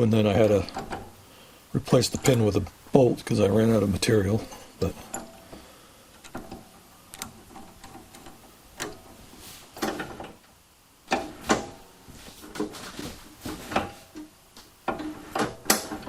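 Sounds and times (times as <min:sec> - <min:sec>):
clicks and clunks of hand work: 0:00.4 - 0:01.1, 0:04.4 - 0:09.2, 0:09.8 - 0:10.5, 0:11.1 - 0:16.0.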